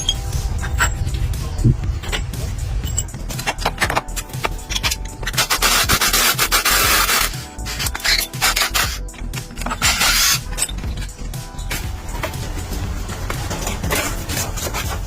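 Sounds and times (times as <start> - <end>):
sanding strokes: 5.4 - 9.0.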